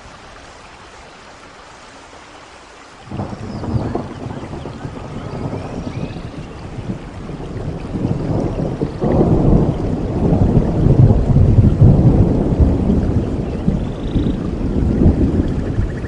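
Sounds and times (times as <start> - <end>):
steady rain: 0.0 - 16.0
rolling thunder: 3.1 - 16.0.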